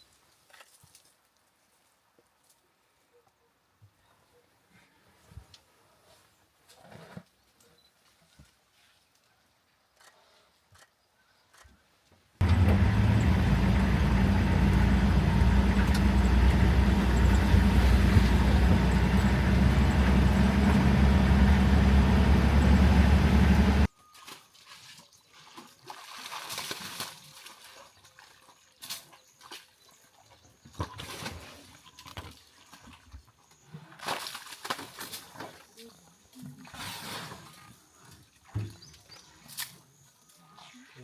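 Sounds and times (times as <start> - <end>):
faint outdoor sounds: 0.0 - 25.4
vehicle engine running: 12.4 - 23.9.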